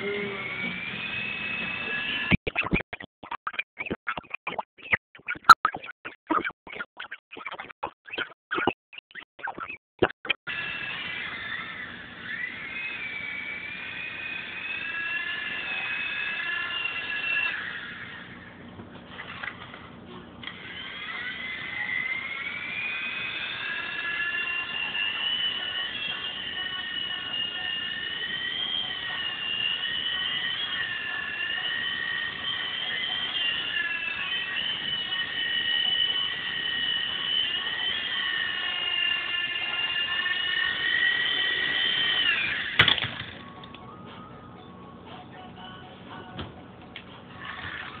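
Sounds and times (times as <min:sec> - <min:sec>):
toy helicopter motors whining: 0:00.0 - 0:02.4, 0:10.5 - 0:19.8, 0:20.4 - 0:43.8, 0:47.3 - 0:48.0.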